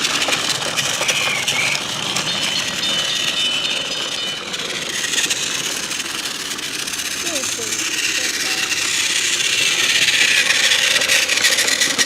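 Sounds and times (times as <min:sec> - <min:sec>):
toy train motor whirring: 0:00.0 - 0:12.0
toy train wheels rattling: 0:00.0 - 0:12.0.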